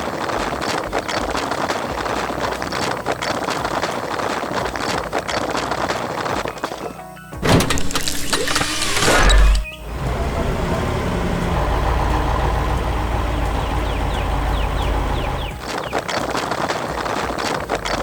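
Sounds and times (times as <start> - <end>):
heavy vehicle engine rumbling: 7.4 - 15.6.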